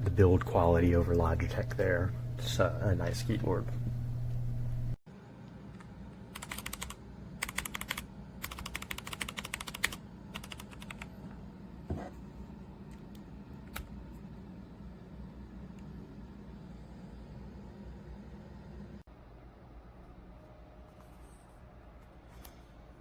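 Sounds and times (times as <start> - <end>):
mechanical keyboard typing: 6.3 - 11.1.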